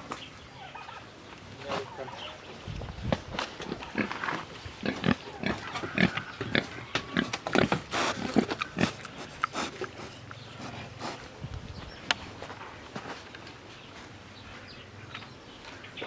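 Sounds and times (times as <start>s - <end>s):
pigs grunting: 3.6s - 11.3s.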